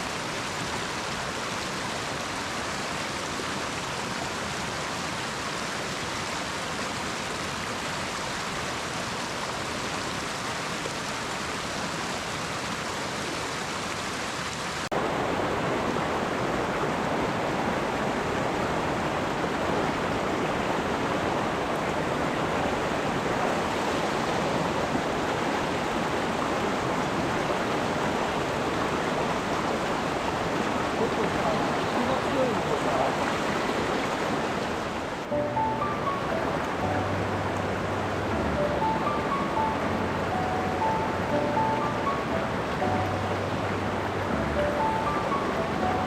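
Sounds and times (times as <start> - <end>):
stream water rushing: 0.0 - 46.0.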